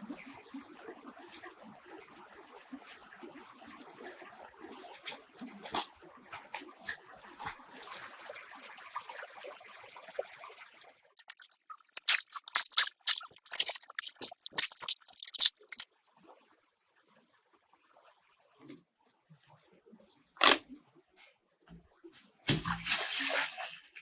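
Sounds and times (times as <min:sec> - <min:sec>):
water trickling and dripping: 0:00.0 - 0:16.4.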